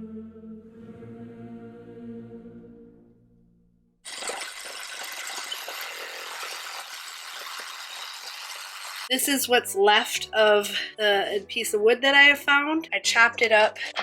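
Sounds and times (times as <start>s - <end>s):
background music: 0.0s - 3.8s, 9.1s - 14.0s.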